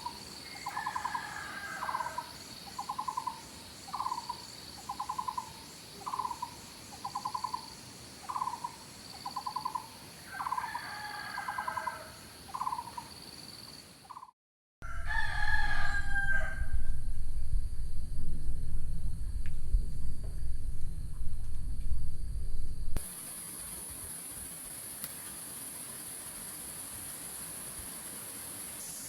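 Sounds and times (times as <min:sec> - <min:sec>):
low rumble: 0:14.8 - 0:23.0
faint high buzz: 0:14.8 - 0:29.0.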